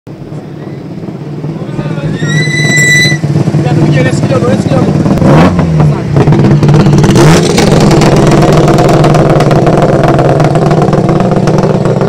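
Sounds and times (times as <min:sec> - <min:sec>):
car engine revving: 0:00.3 - 0:12.0
fast rattle: 0:06.3 - 0:12.0.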